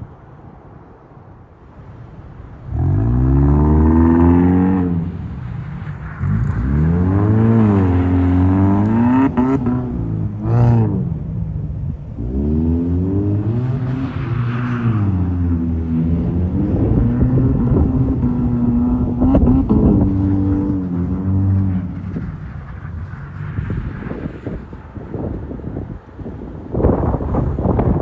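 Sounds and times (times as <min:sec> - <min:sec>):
car engine revving: 0:02.6 - 0:24.2.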